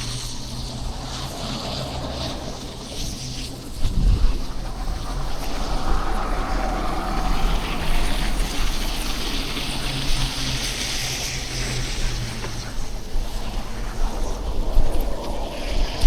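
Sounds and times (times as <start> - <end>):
low rumble: 0.0 - 11.4
vehicle engine humming: 0.0 - 15.1
tyre hiss on snowy road: 0.0 - 16.0.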